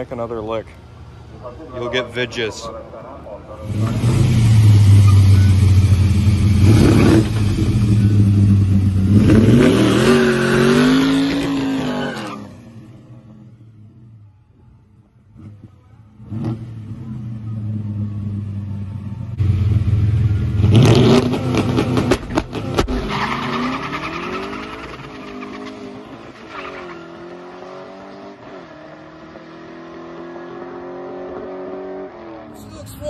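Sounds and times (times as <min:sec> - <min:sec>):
car engine revving: 0:03.5 - 0:13.6, 0:15.3 - 0:32.6.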